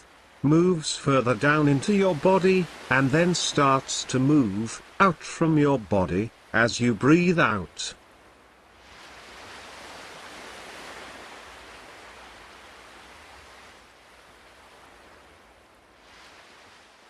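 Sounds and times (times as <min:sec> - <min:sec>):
ocean waves washing on shore: 0:00.0 - 0:17.0.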